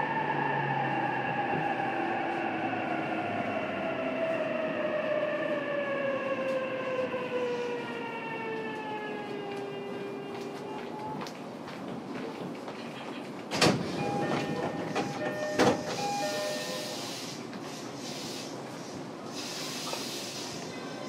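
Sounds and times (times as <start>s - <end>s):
train rail noise with hiss: 13.5s - 21.0s.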